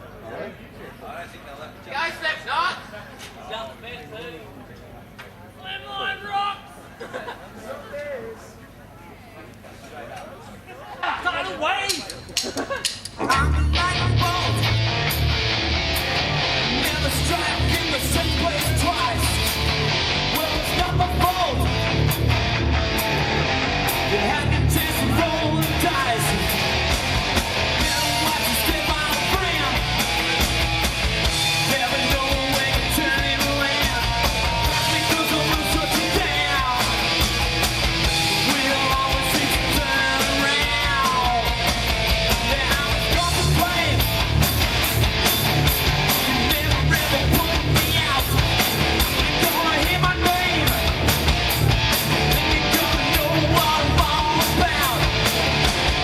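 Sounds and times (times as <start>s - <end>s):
hard rock band playing: 13.1s - 56.0s
person singing or yelling: 31.6s - 37.0s, 38.3s - 41.7s, 52.4s - 55.1s.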